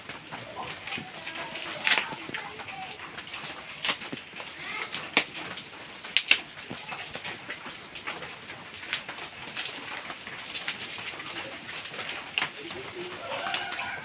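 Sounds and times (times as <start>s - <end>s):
dove cooing: 11.1s - 14.0s.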